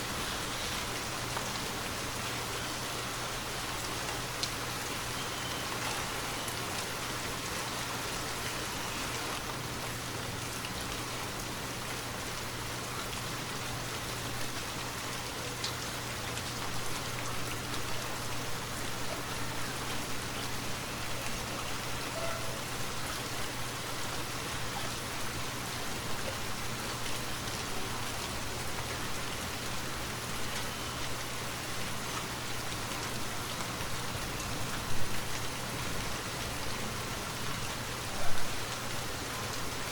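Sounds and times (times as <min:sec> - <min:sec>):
individual raindrops: 0:00.0 - 0:39.9
rain hissing in forest: 0:00.0 - 0:39.9.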